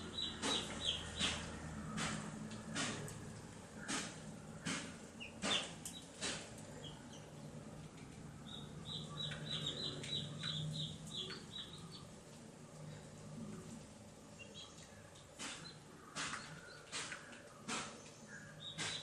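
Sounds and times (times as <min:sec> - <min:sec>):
baby chicks peeping: 0:00.0 - 0:03.0, 0:03.8 - 0:12.2, 0:14.3 - 0:19.0
sharp knocks or scratches: 0:00.4 - 0:03.1, 0:03.8 - 0:06.6, 0:15.4 - 0:18.0, 0:18.8 - 0:19.0.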